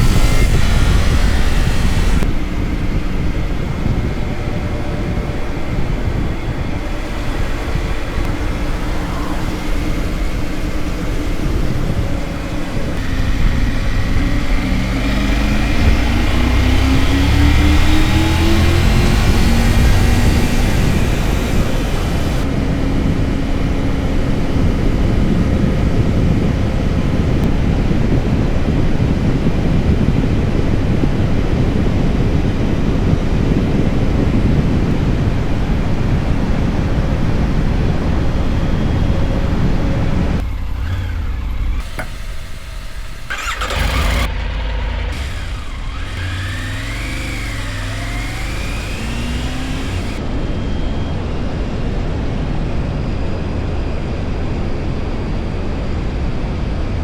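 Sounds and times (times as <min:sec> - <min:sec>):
motorcycle engine running: 0:00.0 - 0:34.5, 0:40.2 - 0:51.0
wind rushing over microphone: 0:00.0 - 0:41.9.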